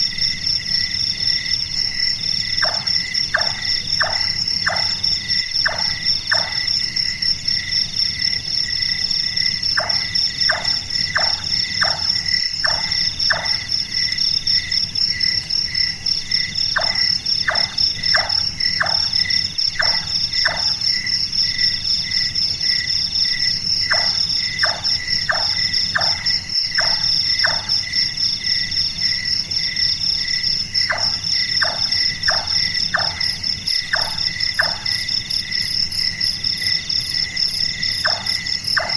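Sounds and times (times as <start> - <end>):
insects chirring at night: 0.0 - 38.9
nightjar knocking calls: 2.6 - 5.0, 5.6 - 6.6, 9.8 - 13.6, 16.8 - 19.2, 30.9 - 33.2, 33.9 - 34.9, 38.0 - 38.9.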